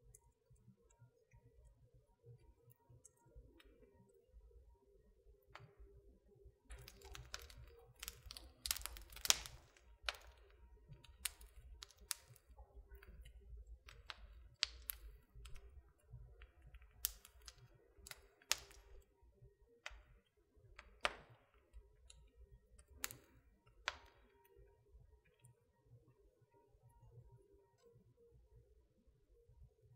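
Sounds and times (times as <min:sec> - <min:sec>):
wood fire crackling: 0:06.6 - 0:19.2, 0:19.8 - 0:24.6.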